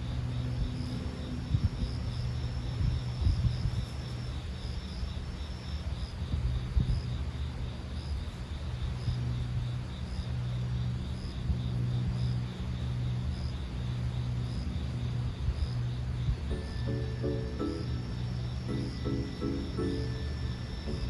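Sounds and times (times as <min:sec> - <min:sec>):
insects trilling: 0:00.0 - 0:21.0
low steady rumble: 0:08.6 - 0:21.0
music: 0:16.4 - 0:21.0
high chirp: 0:16.5 - 0:21.0.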